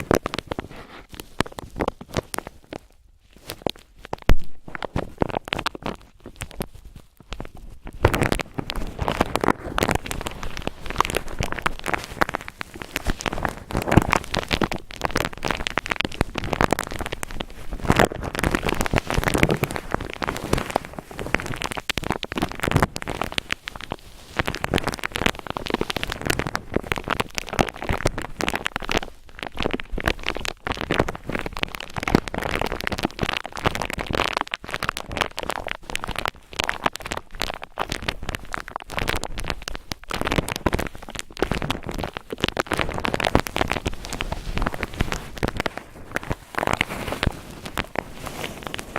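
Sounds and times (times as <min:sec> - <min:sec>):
cotton ball rubbing microphone: 0:00.0 - 0:02.7, 0:37.5 - 0:48.9.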